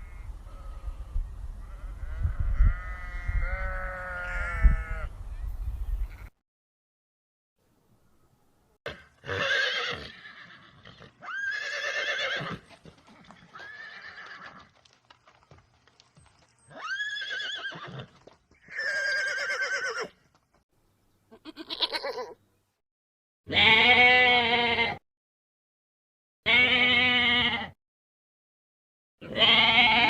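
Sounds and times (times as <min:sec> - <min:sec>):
pony whinnying: 0:08.9 - 0:12.7, 0:13.4 - 0:14.7, 0:16.7 - 0:20.2, 0:21.4 - 0:22.4, 0:29.2 - 0:30.0.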